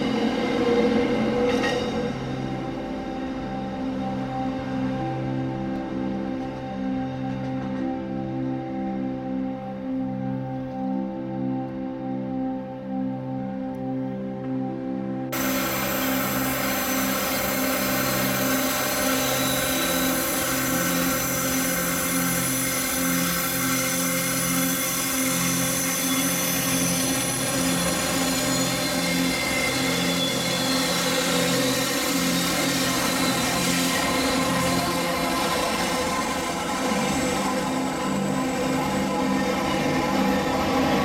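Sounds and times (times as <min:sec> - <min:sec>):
train rushing noise: 0:00.0 - 0:04.3, 0:15.4 - 0:41.0
background music: 0:00.0 - 0:41.0.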